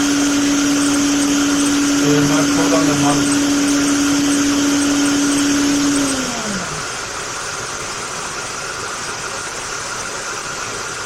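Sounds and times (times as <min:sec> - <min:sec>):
blower fan rushing air: 0:00.0 - 0:10.6.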